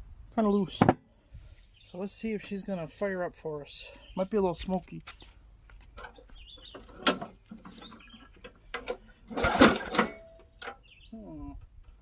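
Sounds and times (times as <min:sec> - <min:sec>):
recoil starter pulled: 0:06.8 - 0:10.7
mower engine cranking: 0:06.8 - 0:10.8.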